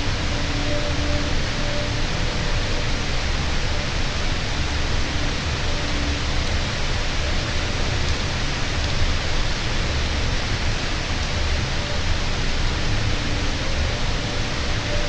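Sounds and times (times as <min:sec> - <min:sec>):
rain hissing: 0:00.0 - 0:15.0.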